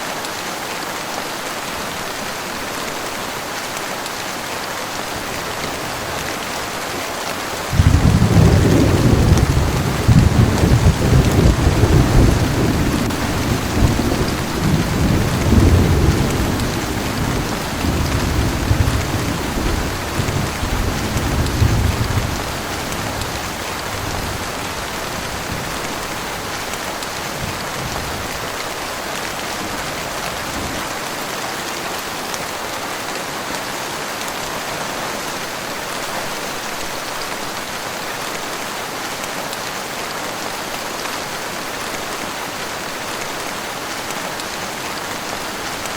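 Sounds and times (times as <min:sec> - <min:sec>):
heavy rain falling: 0:00.0 - 0:45.9
thunder rumbling: 0:07.7 - 0:28.4.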